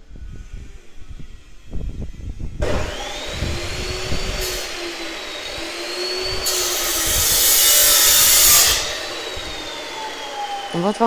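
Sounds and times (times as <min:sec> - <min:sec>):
small motor whining: 0:00.2 - 0:11.0
rushing hiss: 0:02.8 - 0:11.0.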